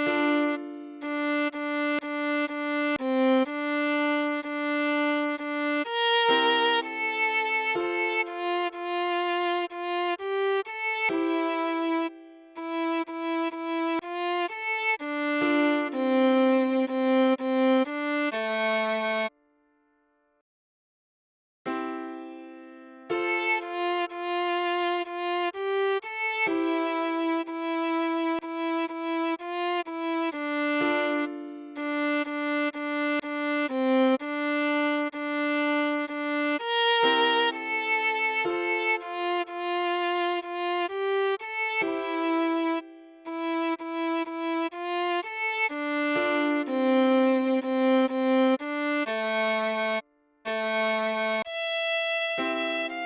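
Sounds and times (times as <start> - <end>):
solo viola melody: 0.0 - 19.4, 23.1 - 53.0.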